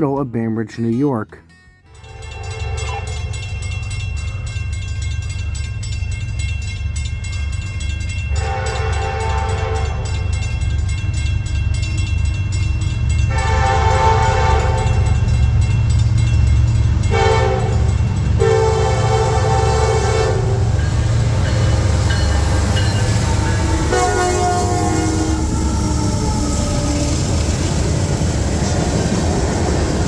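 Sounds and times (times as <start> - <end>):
locomotive engines rumbling: 0.0 - 30.0
train air horn blasts: 2.0 - 3.4, 8.4 - 10.2, 13.3 - 15.2, 17.1 - 20.8, 23.2 - 27.0.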